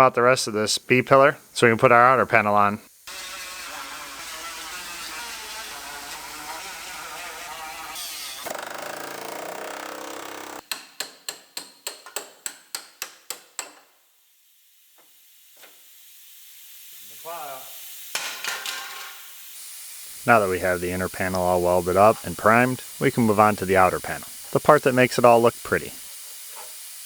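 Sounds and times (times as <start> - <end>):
power tool running: 3.0 - 10.6, 19.5 - 27.0.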